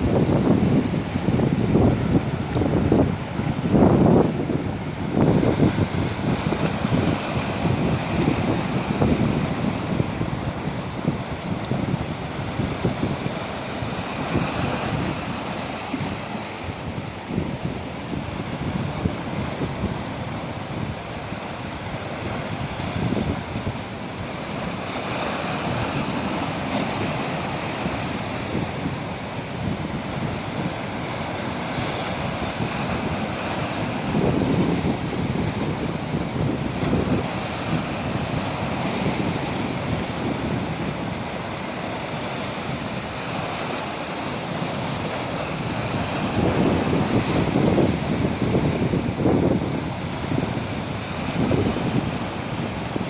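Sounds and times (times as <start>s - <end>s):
ocean waves breaking on shore: 0.0s - 53.0s
wind buffeting microphone: 0.0s - 53.0s.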